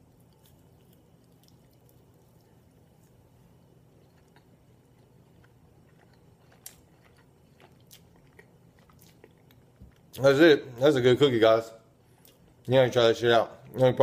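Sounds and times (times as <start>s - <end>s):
person chewing: 0.0s - 10.2s.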